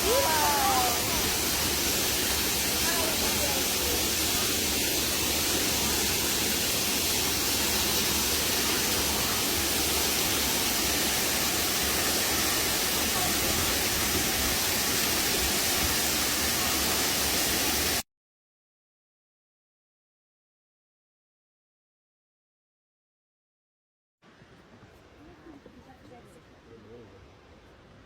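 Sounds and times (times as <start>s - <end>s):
river water cascading over rocks: 0.0s - 18.0s.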